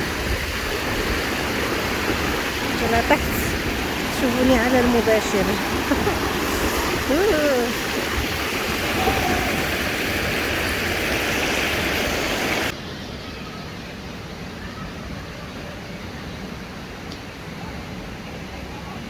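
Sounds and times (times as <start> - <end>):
stream water rushing: 0.0 - 12.8.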